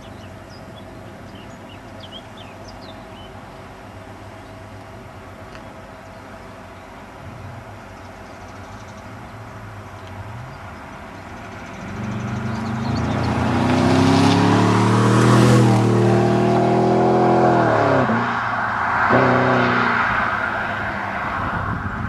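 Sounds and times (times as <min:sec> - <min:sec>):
car engine revving: 0:09.1 - 0:21.7.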